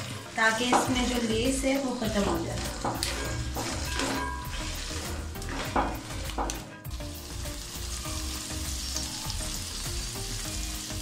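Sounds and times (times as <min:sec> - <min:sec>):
spatula scraping and stirring: 0:00.0 - 0:07.0
okra sizzling in hot oil: 0:00.0 - 0:11.0.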